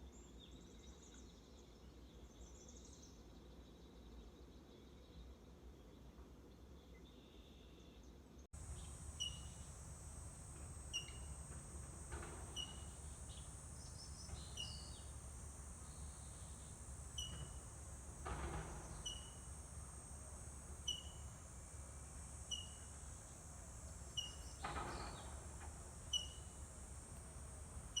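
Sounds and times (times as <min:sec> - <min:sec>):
bird chirping: 0:08.6 - 0:19.7, 0:20.8 - 0:21.2
high-pitched buzz: 0:08.6 - 0:28.0.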